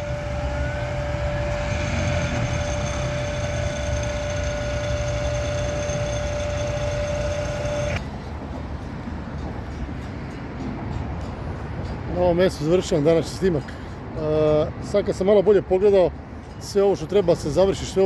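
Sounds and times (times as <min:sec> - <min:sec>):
mechanical whine: 0:00.0 - 0:08.2.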